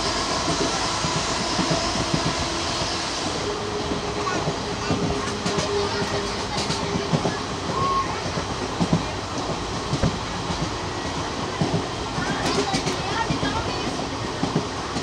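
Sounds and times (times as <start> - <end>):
train rumbling on track: 0.0 - 15.0
wheels knocking on rails: 4.4 - 15.0.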